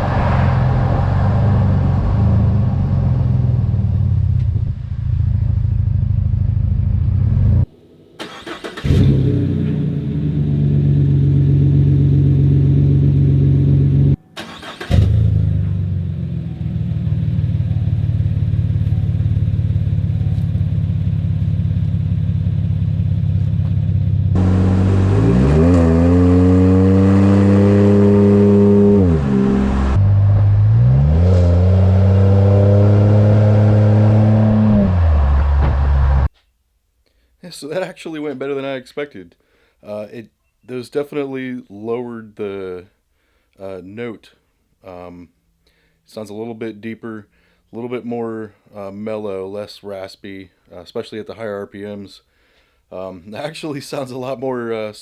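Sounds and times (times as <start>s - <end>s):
truck engine revving while driving: 8.8s - 14.2s, 24.2s - 36.3s.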